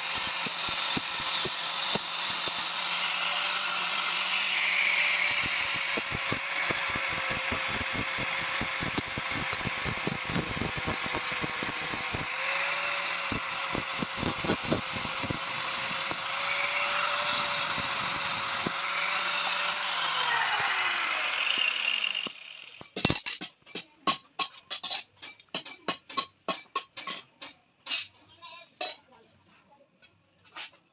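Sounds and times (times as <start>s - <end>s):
power tool grinding steel: 0.0s - 23.0s.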